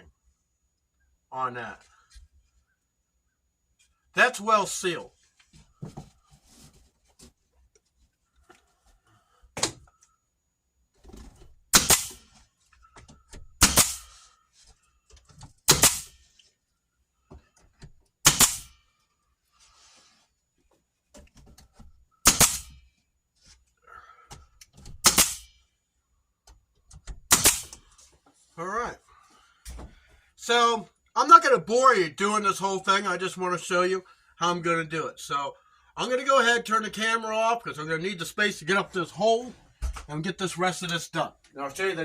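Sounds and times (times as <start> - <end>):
staple gun firing: 11.8 - 12.2, 18.3 - 18.7, 22.3 - 22.7, 25.0 - 25.4, 27.3 - 27.8.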